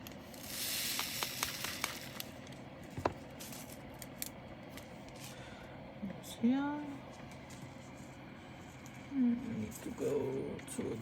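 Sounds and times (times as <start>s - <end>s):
small resin beads clicking: 0.4s - 2.3s.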